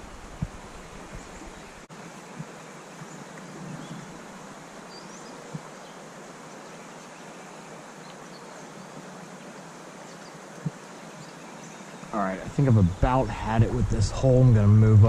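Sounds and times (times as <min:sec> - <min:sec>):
flowing creek water: 0:00.0 - 0:15.0
faint bird chirps: 0:00.8 - 0:12.2.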